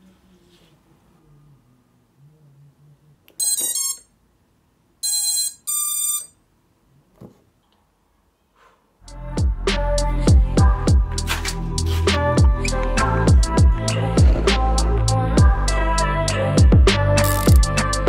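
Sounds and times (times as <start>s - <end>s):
drone motor beeps: 3.4s - 4.1s, 5.0s - 6.4s.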